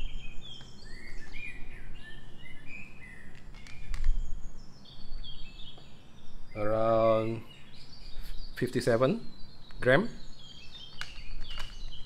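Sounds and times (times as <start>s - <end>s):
small birds chirping: 0.0s - 12.0s
sharp plastic clicks: 3.3s - 4.2s, 10.7s - 12.0s.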